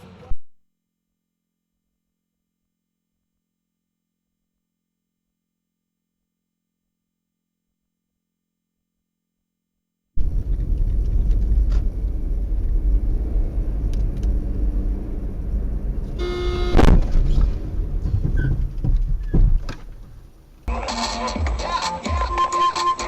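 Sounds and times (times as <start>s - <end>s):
car engine and road noise: 10.2s - 20.7s
car horn: 16.2s - 17.1s
music: 20.7s - 23.0s.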